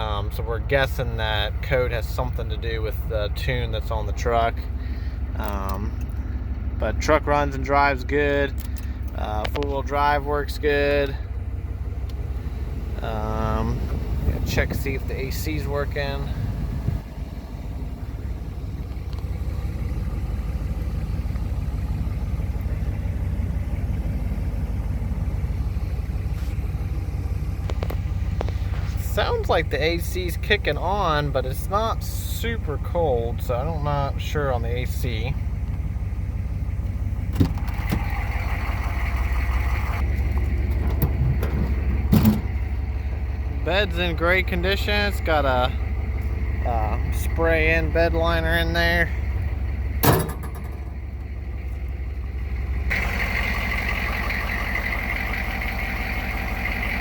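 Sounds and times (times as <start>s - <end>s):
diesel engine idling: 0.0s - 57.0s
sharp engine knocks: 37.2s - 38.3s, 40.0s - 42.7s, 50.0s - 51.4s.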